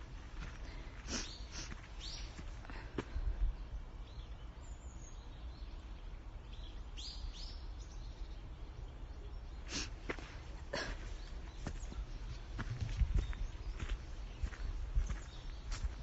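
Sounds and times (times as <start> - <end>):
footstep crunch: 0.0 - 3.2, 9.9 - 16.0.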